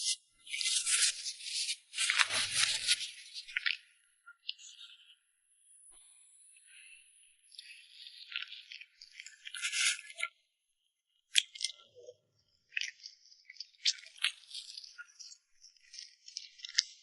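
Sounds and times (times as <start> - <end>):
crackling and crinkling: 0.0 - 4.9, 6.8 - 10.3.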